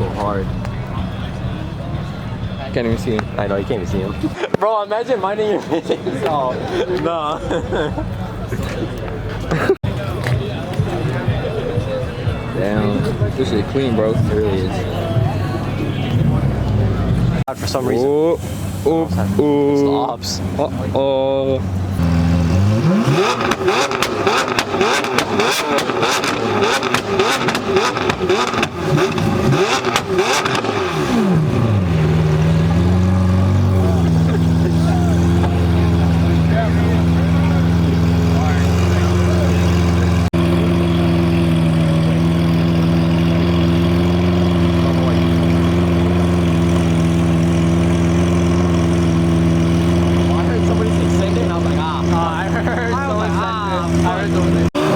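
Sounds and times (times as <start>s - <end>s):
car engine revving: 9.9s - 54.9s
exhaust cracks and pops: 23.3s - 31.2s.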